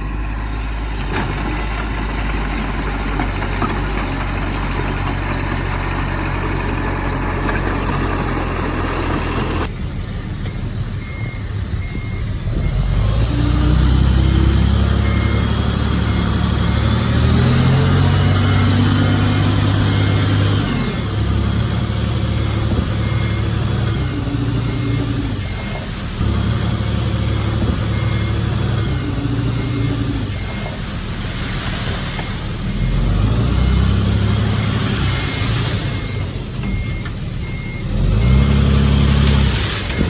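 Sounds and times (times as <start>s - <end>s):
diesel engine under load: 0.0s - 40.0s
reversing alarm beeping: 6.8s - 30.8s, 32.1s - 40.0s.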